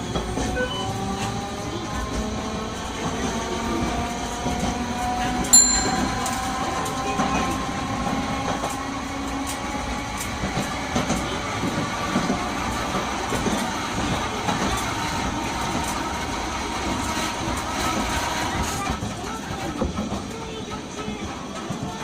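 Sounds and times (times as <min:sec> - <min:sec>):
streetcar motor hum: 0:00.0 - 0:22.0
wheels clicking on track: 0:00.0 - 0:22.0
sharp click with high ring: 0:05.6 - 0:06.8.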